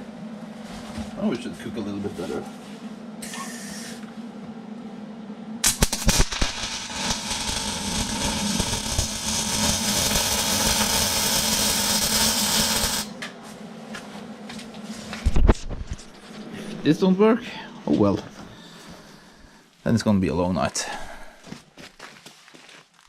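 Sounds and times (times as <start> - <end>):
low steady hum: 0.0 - 21.5
welding arc strikes: 5.6 - 13.2
welding arc crackling sizzle: 5.6 - 13.3.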